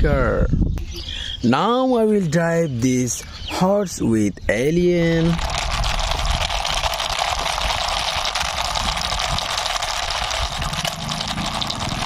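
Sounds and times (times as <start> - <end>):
toy mechanical rattle: 5.3 - 12.0.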